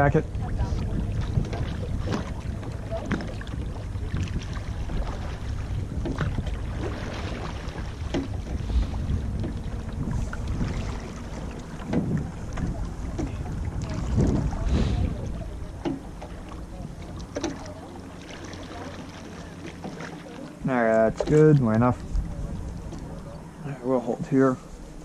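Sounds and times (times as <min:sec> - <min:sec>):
wind rumble on microphone: 0:00.0 - 0:17.7, 0:21.0 - 0:25.0
water swishing: 0:00.0 - 0:25.0
oars knocking in oarlocks: 0:05.9 - 0:14.7, 0:15.8 - 0:17.8.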